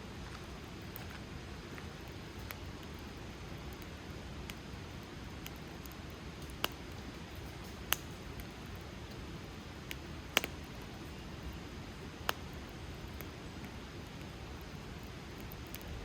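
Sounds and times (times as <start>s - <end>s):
low rush of burning fire: 0.0s - 16.0s
wood fire crackling and popping: 0.1s - 16.0s.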